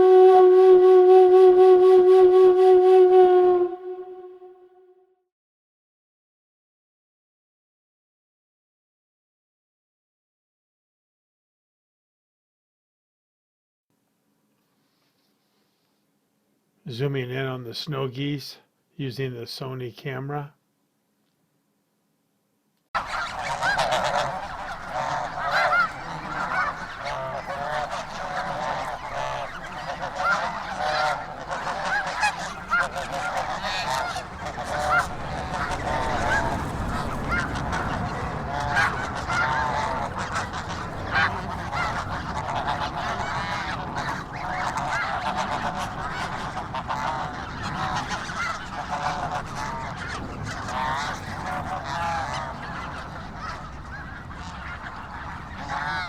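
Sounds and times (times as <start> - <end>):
geese honking: 0.0 - 4.7, 23.0 - 56.0.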